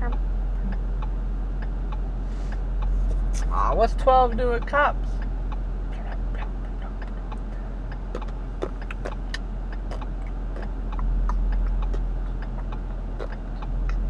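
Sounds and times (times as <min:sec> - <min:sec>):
car engine idling: 0:00.0 - 0:14.0
light quick ticking: 0:06.3 - 0:14.0.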